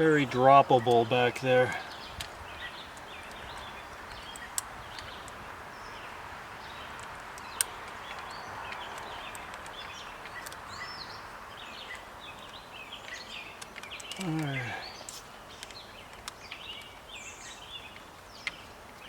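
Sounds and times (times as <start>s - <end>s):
birds chirping: 0.0s - 19.0s
sharp clicks: 6.9s - 10.7s, 11.9s - 17.0s
outdoor hiss: 10.7s - 19.0s.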